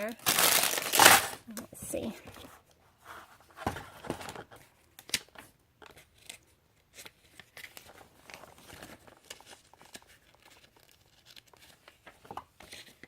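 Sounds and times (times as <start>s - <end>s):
paper rustling and crinkling: 2.2s - 13.0s.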